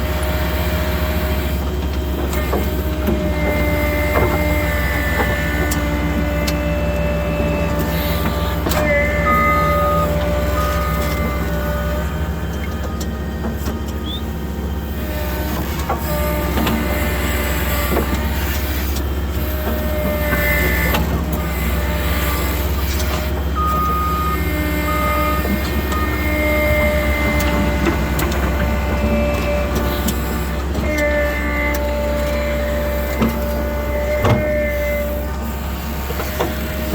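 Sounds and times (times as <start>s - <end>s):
diesel engine running: 0.0s - 36.9s
high whining tones: 3.8s - 19.0s.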